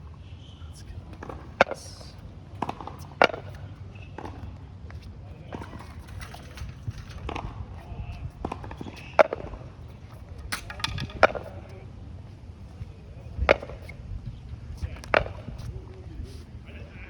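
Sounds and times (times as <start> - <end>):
tennis balls knocking on court: 1.1 - 11.8, 13.4 - 13.9, 15.0 - 15.7.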